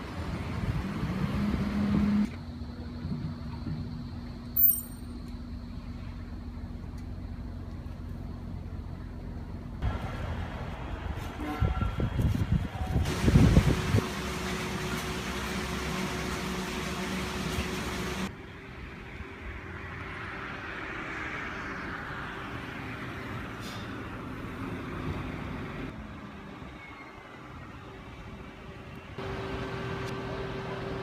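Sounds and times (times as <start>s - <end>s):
distant rail yard noise: 2.2s - 31.0s
wind hiss: 11.2s - 14.1s
wind buffeting microphone: 11.6s - 14.0s.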